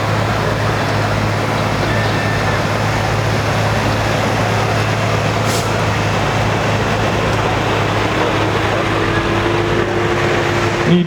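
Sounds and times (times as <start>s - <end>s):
tractor engine running hard: 0.0s - 11.0s.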